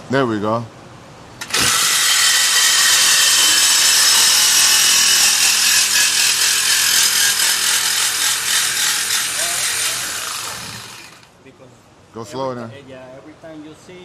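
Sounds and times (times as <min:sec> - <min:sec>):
power tool cutting metal pipe: 0:01.4 - 0:11.3.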